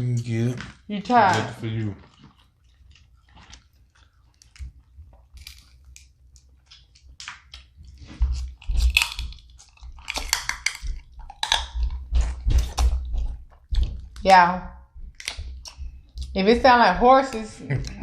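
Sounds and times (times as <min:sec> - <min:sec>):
chewing and crunching seafood: 0:00.0 - 0:18.0
low thuds: 0:11.8 - 0:17.3.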